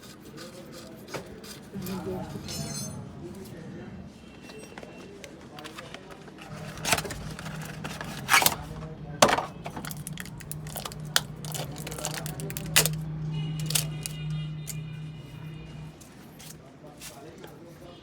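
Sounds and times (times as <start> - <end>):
metal tools clinking: 1.8 - 3.2, 9.2 - 13.0, 13.6 - 14.8
steady low hum: 6.5 - 16.5.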